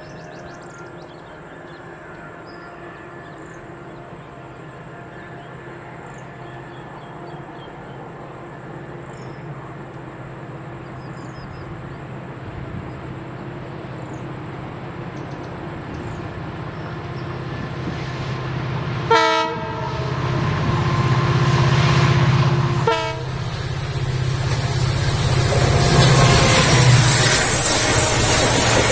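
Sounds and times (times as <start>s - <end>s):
train running: 0.0s - 28.9s
train horn blast: 17.8s - 23.8s, 25.1s - 28.9s.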